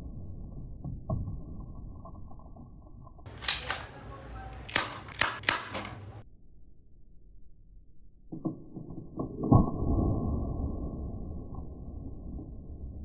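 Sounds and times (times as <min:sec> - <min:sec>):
sharp clicks: 0:03.3 - 0:06.2.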